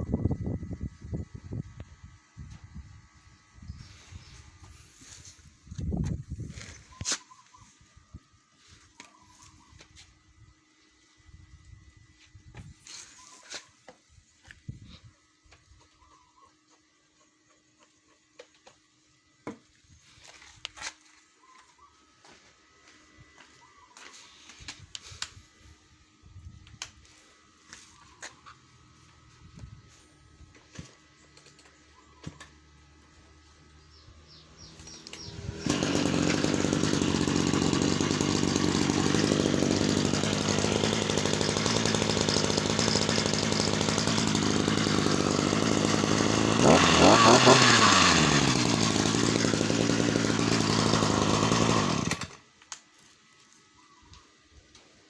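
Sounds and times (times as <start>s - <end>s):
brush cutter petrol engine: 33.4s - 53.1s.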